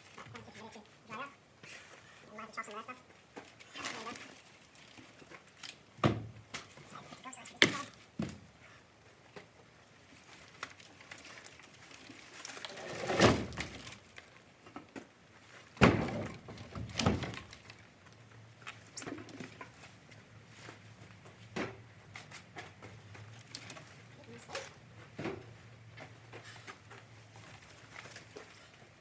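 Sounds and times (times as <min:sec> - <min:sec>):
firewood thudding onto woodpile: 0:15.8 - 0:17.6.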